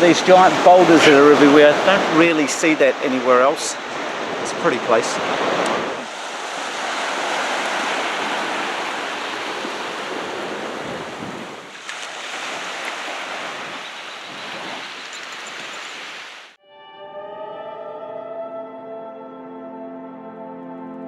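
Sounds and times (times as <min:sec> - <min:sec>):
waves and surf rushing: 0:00.0 - 0:16.6.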